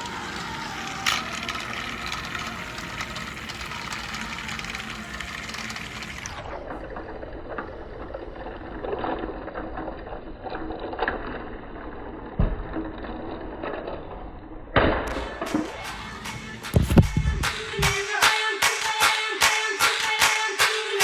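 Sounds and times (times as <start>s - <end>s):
toy train motors running: 0.0s - 10.8s
plastic wheels on track: 0.0s - 18.2s.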